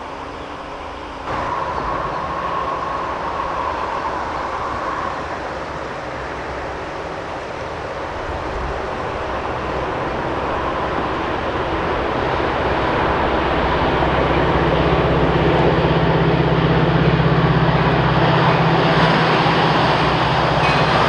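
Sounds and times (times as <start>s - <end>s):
high whine: 0.0s - 21.0s
train rumbling on rails: 0.0s - 21.0s.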